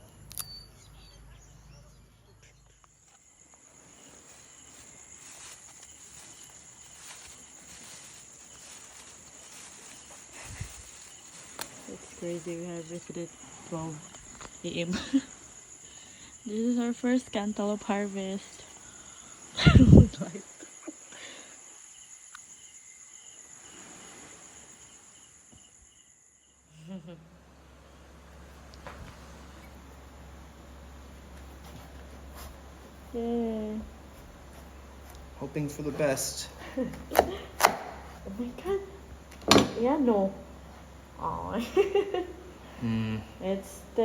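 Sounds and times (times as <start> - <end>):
crickets chirring: 0.0 - 44.0
faint rustles: 2.6 - 21.7, 28.1 - 44.0.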